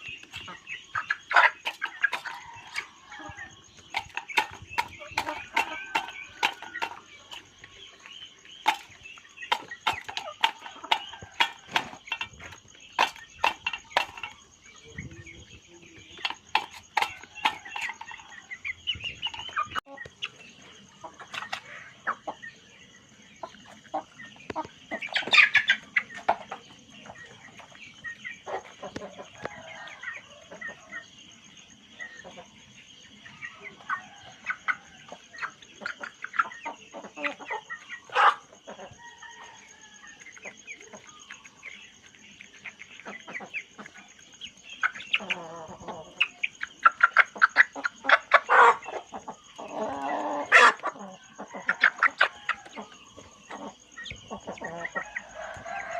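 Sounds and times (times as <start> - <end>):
chickens clucking: 0.0 - 55.9
chicken squawk: 44.8 - 52.9.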